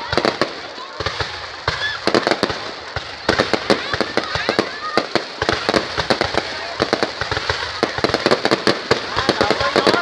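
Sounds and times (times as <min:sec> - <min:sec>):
fireworks cracking and popping: 0:00.0 - 0:10.0.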